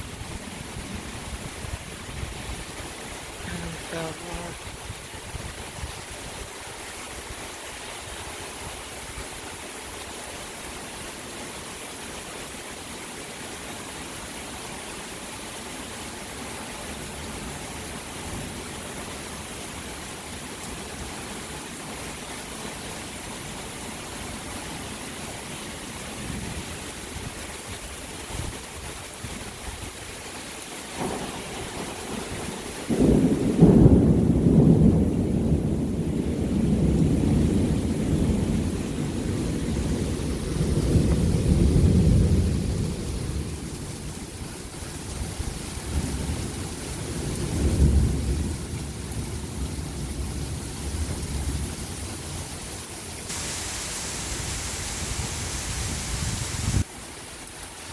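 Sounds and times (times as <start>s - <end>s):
steady rain falling: 0.0s - 57.9s
low rumble of thunder: 31.0s - 44.1s, 45.8s - 51.8s.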